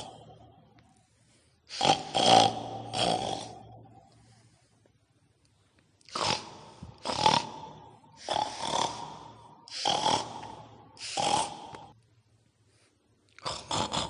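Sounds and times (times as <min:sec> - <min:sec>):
pig-like grunts: 0:00.0 - 0:00.4, 0:01.7 - 0:04.0, 0:06.1 - 0:12.0, 0:13.4 - 0:14.0.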